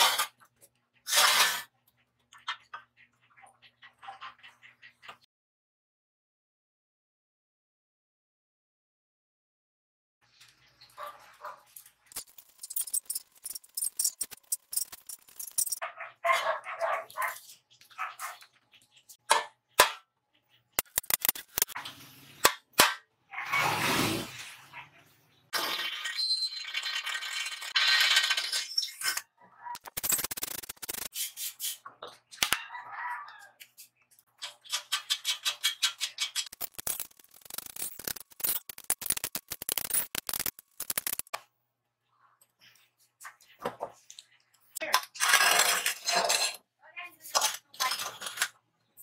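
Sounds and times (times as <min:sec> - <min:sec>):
metallic clicking and rattling: 0:12.1 - 0:15.8.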